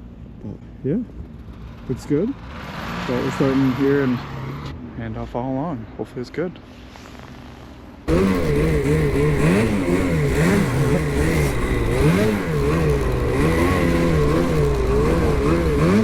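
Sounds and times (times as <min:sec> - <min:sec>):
snowmobile engine revving: 0:02.0 - 0:04.7, 0:08.1 - 0:16.0.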